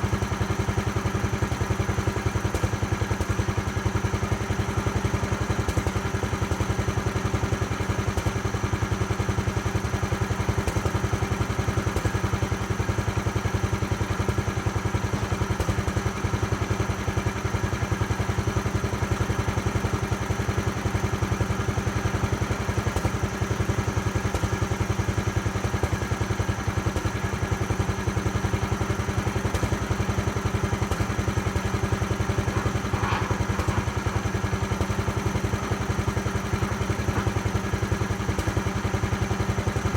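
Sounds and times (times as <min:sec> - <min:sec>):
sawmill engine running: 0:19.6 - 0:39.9.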